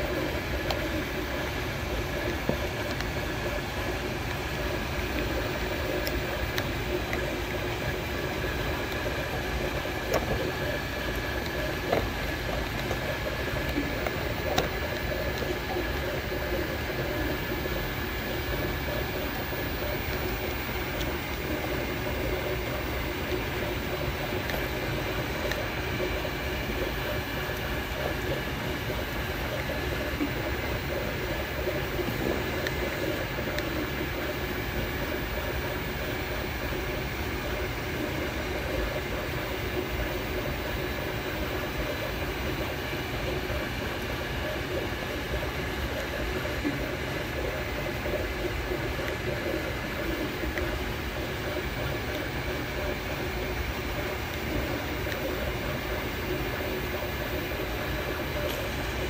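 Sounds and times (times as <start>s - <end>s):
three d printer running: 0.0s - 59.0s.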